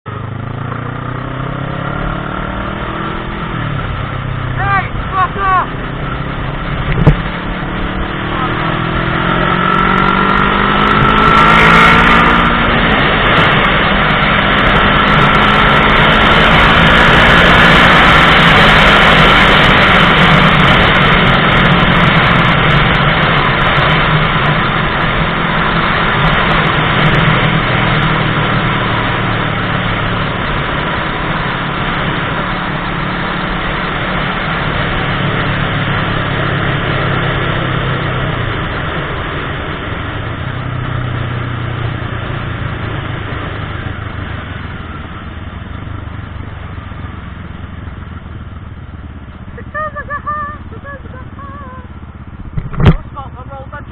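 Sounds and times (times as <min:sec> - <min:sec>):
motorcycle engine accelerating: 0:00.0 - 0:53.9
wind noise rush: 0:02.1 - 0:31.8.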